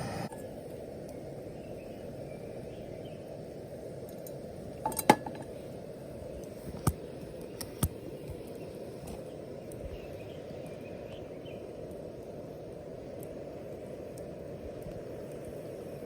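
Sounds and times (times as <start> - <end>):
utensils clinking on cookware: 4.9 - 5.5.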